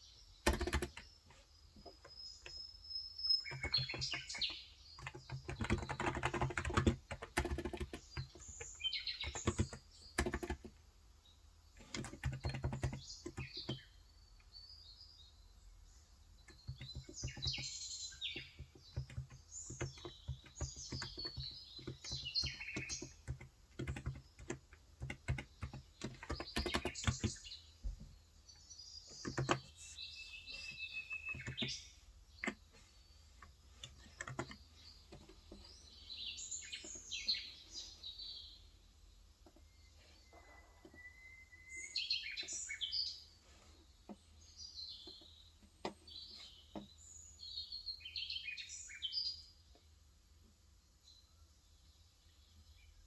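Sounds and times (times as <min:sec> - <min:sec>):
small birds chirping: 0:00.0 - 0:53.0
keyboard typing: 0:00.4 - 0:02.6, 0:03.4 - 0:10.8, 0:11.8 - 0:13.8, 0:16.5 - 0:27.5, 0:29.2 - 0:30.0, 0:30.6 - 0:31.8, 0:33.4 - 0:35.7.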